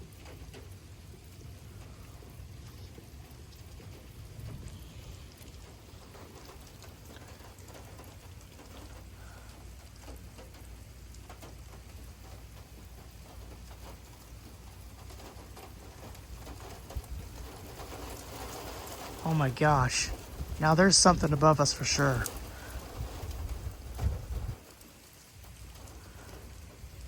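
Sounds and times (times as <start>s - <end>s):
low steady rumble: 0.0s - 27.0s
raindrops pattering: 0.0s - 27.0s.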